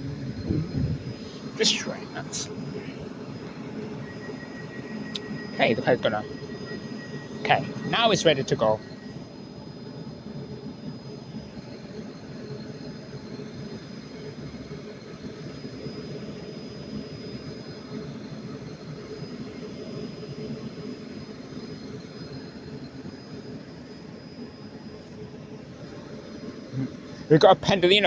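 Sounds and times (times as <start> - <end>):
faint high whine: 0.0 - 28.0.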